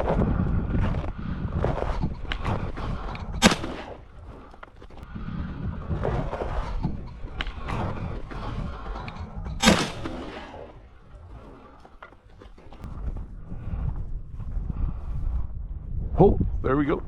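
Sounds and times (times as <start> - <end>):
rustling of movement: 0.0 - 17.0
shotgun shot: 3.4 - 4.0, 9.6 - 10.7.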